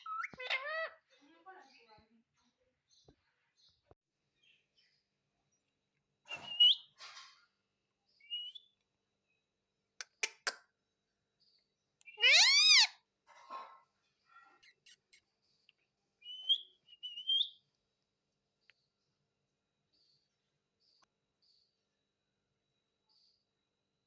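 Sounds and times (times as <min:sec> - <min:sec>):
parrot calling: 0:00.0 - 0:01.0, 0:12.1 - 0:13.0.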